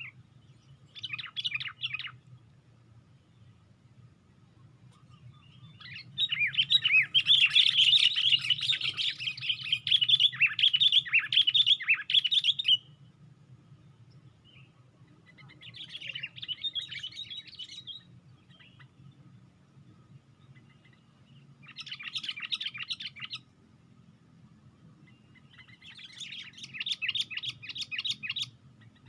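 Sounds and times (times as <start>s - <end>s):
faint low hum: 0.0s - 29.0s
bird chattering chirps: 5.4s - 12.8s, 21.6s - 23.5s, 25.1s - 29.0s.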